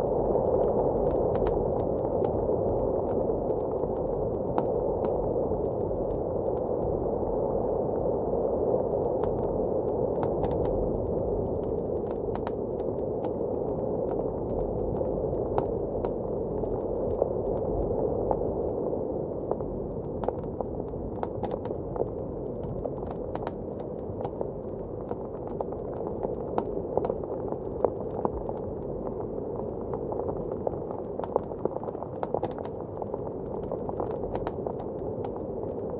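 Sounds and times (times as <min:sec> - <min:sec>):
muffled blizzard wind: 0:00.0 - 0:35.9
fireplace crackling and popping: 0:19.4 - 0:35.9.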